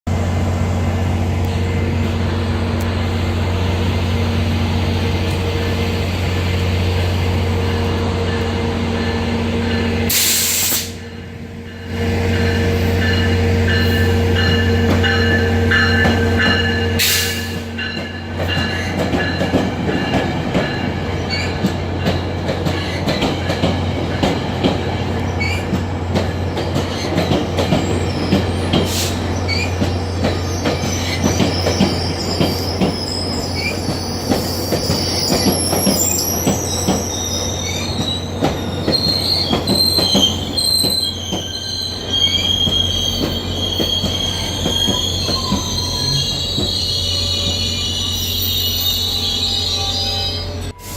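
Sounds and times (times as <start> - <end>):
high wheel squeal: 26.4 - 50.9.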